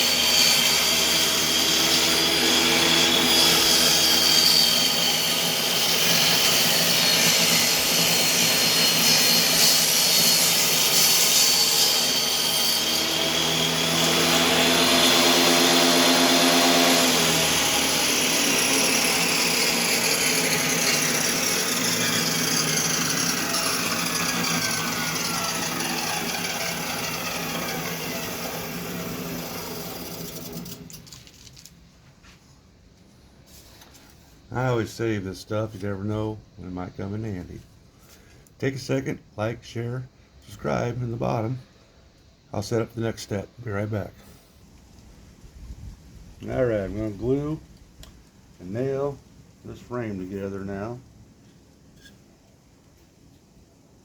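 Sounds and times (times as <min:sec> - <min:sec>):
saw blade coasting down whine: 0:00.0 - 0:31.0
power saw cutting wood: 0:00.0 - 0:31.1.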